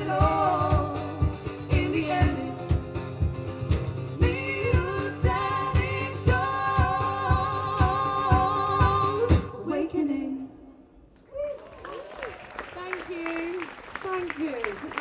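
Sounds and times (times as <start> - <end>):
wordless singing: 0.0 - 3.0, 4.1 - 10.8.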